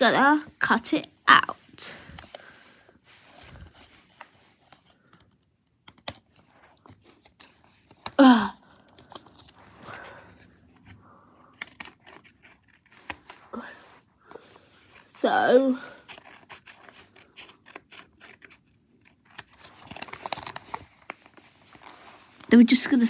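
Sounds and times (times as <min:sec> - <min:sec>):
paper rustling and crinkling: 0:01.6 - 0:15.1, 0:15.9 - 0:23.0
scissors snipping paper: 0:05.2 - 0:06.4, 0:10.7 - 0:13.5, 0:14.8 - 0:21.1.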